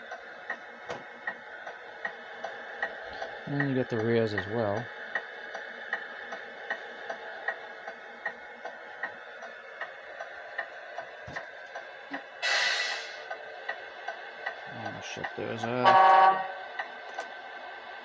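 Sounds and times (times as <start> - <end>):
short loud hiss: 12.4 - 13.2.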